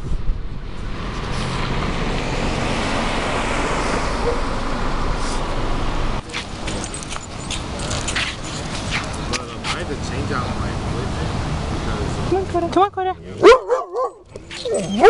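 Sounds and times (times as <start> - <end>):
vehicle driving past: 0.6 - 12.4.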